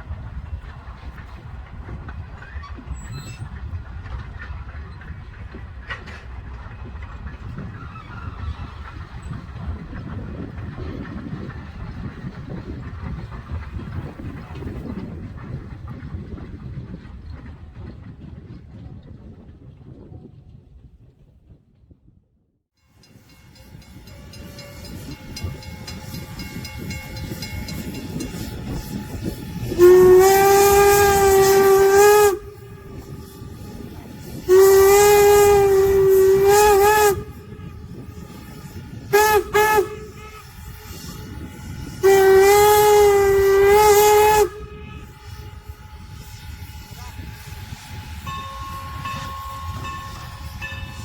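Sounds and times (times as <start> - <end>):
train running noise: 0.0 - 21.0, 22.8 - 51.0
steam whistle blowing: 23.6 - 51.0.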